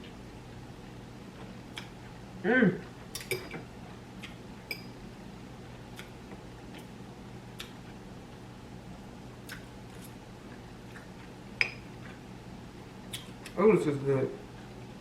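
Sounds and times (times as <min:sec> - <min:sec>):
low steady hum: 0:00.0 - 0:15.0
wet chewing mouth clicks: 0:07.6 - 0:07.8, 0:09.4 - 0:10.1.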